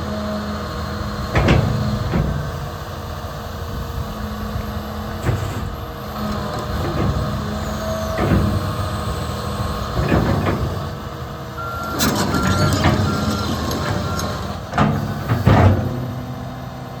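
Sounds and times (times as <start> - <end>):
excavator running: 0.0 - 17.0
heavy clunks: 1.2 - 2.8, 5.1 - 16.9
travel alarm beeping: 11.6 - 14.4.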